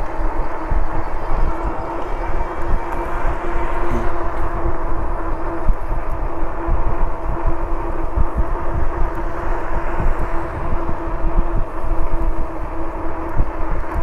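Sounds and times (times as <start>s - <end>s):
wind buffeting microphone: 0.0s - 14.0s
electric motor whining: 1.4s - 4.8s.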